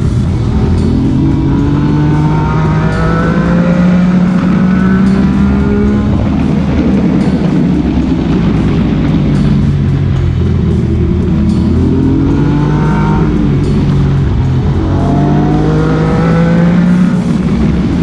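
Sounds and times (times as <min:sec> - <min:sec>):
motorcycle engine accelerating: 0:00.0 - 0:18.0
music: 0:00.0 - 0:18.0
road and wind noise: 0:00.0 - 0:18.0.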